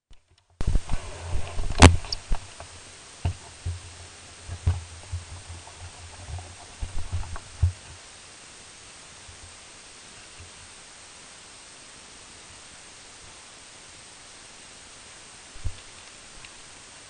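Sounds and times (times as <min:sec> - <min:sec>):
steady hiss: 0:00.1 - 0:17.0
microphone handling thumps: 0:00.6 - 0:08.0, 0:15.6 - 0:15.9
sharp click: 0:01.7 - 0:02.4.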